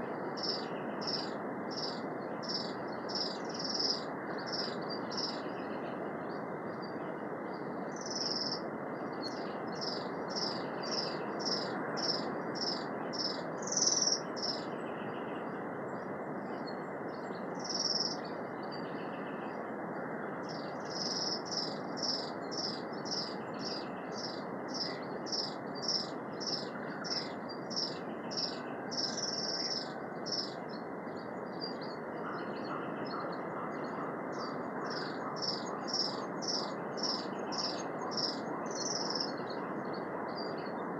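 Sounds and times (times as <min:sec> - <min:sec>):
bird chirping: 0:35.0 - 0:39.4.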